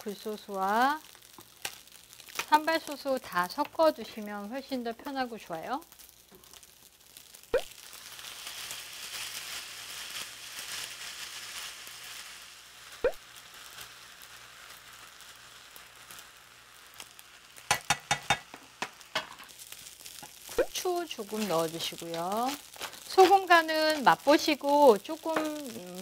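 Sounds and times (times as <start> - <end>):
rice sizzling in a frying pan: 0.0 - 26.0
jar tapping on pan: 17.7 - 19.4.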